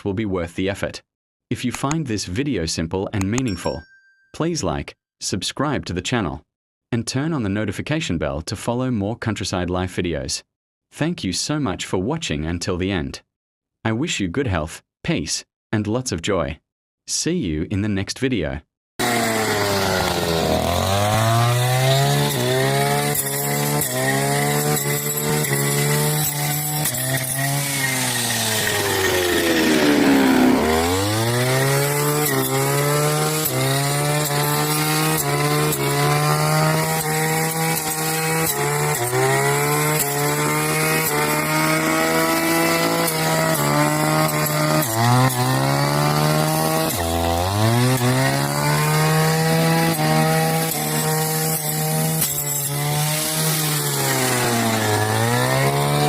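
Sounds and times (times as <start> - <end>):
brush cutter engine cutting grass: 19.0 - 56.0.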